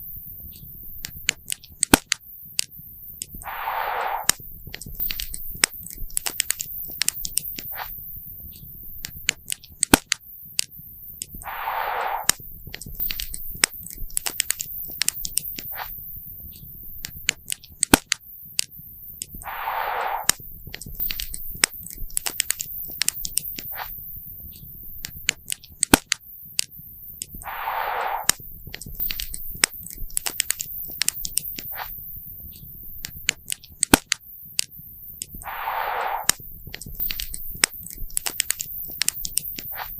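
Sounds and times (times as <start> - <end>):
short hissing burst: 3.4 - 4.4, 11.4 - 12.4, 19.4 - 20.4, 27.4 - 28.4, 35.4 - 36.4.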